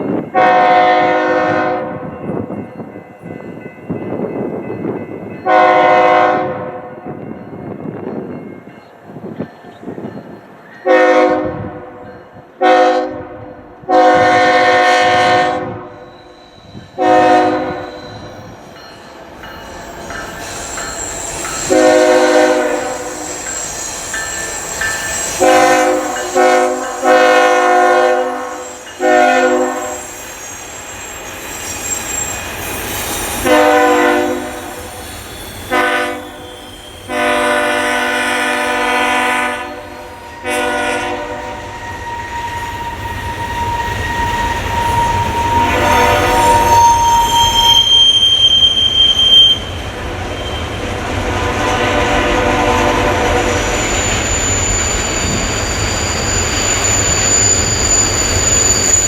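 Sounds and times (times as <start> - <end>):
train rolling rumble: 0.0 - 59.0
locomotive air horn blasts: 0.4 - 2.0, 5.4 - 6.8, 10.9 - 12.0, 12.6 - 16.1, 17.0 - 18.0, 21.6 - 23.4, 25.4 - 30.0, 33.4 - 34.7, 35.7 - 36.4, 37.1 - 42.4, 44.4 - 48.1, 51.3 - 53.7
high wheel squeal: 16.0 - 17.0, 17.8 - 18.8, 19.5 - 27.6, 28.2 - 38.0, 40.0 - 51.1, 52.9 - 59.0.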